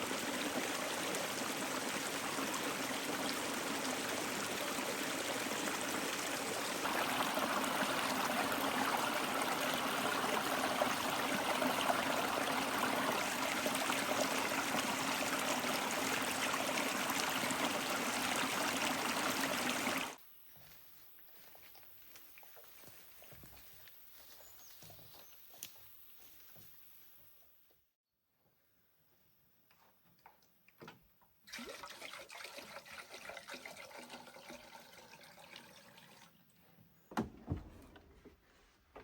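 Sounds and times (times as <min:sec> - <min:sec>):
rushing trickling water: 0:00.0 - 0:20.2, 0:31.5 - 0:36.4.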